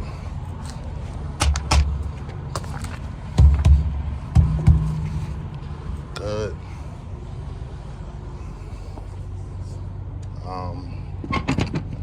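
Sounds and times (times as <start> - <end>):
truck idling hum: 0.0 - 11.2
dull thuds on tires: 1.4 - 5.6.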